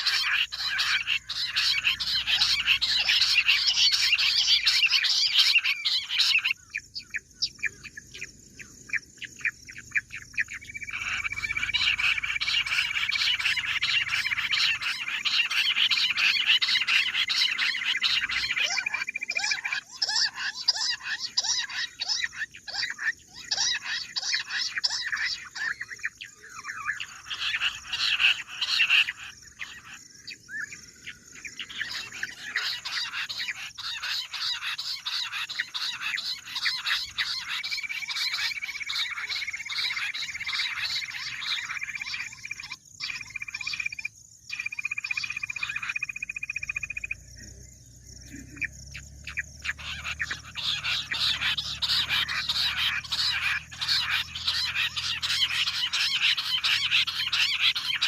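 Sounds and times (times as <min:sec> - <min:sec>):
quail chirping calls: 0:00.0 - 0:58.0.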